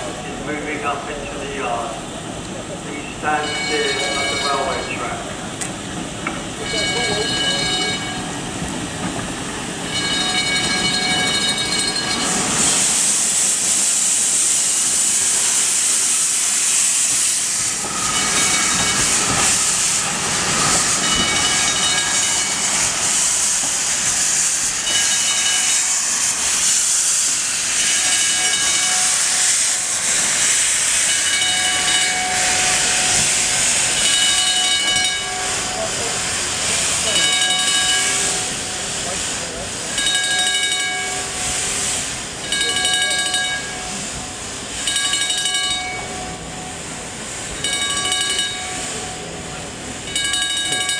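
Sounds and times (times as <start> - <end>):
steam hiss: 0.0 - 50.9
steam locomotive moving: 0.0 - 50.9
high ringing tones: 3.2 - 5.2, 6.6 - 8.3, 9.9 - 12.4.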